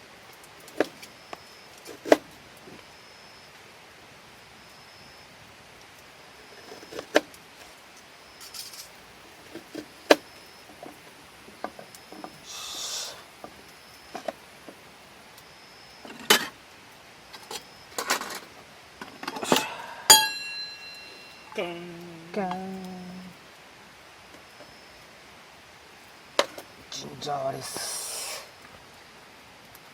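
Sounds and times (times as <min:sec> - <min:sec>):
short hissing rush: 0:12.4 - 0:13.4, 0:27.6 - 0:28.6
tableware and utensils clicking: 0:19.2 - 0:21.6.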